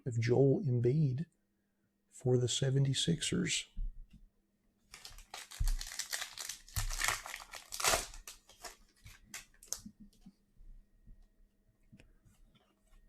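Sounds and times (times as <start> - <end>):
plastic wrapper crinkling and tearing: 4.9 - 9.9.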